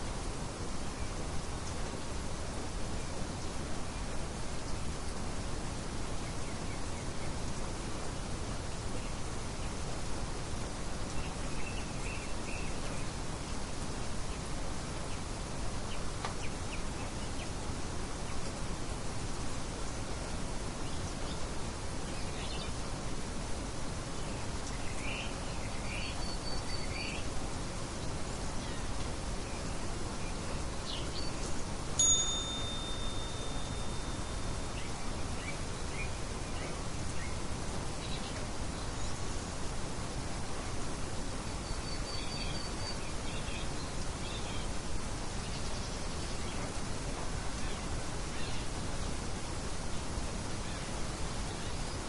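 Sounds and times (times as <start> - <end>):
outdoor ambience hiss: 0.0 - 52.0
birds chirping: 24.2 - 39.5
bird trill and chirps: 30.8 - 37.4
thin high bird whistle: 32.0 - 34.9.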